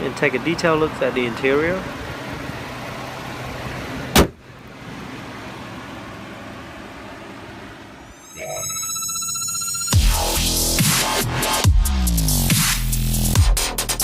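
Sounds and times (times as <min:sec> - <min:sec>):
hood slamming shut: 0:04.1 - 0:04.4.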